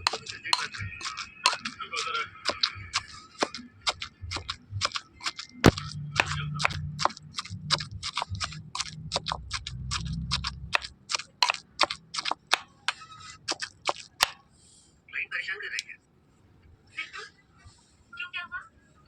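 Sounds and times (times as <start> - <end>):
utensil knocking on food: 0.0 - 14.4
low hum: 5.6 - 11.0.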